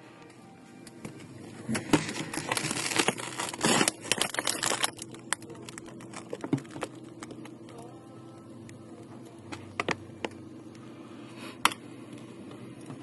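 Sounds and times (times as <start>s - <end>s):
rustling and crinkling: 1.6s - 7.5s.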